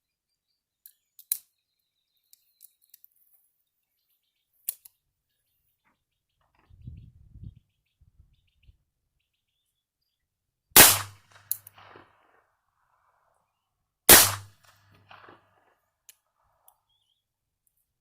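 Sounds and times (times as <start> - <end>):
pistol shots with echo: 10.8 - 12.4, 14.1 - 15.7.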